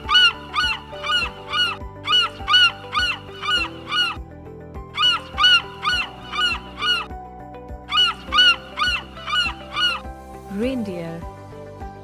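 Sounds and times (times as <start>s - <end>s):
gull cries: 0.0s - 7.2s, 7.9s - 10.3s
background music with held notes: 0.0s - 12.0s.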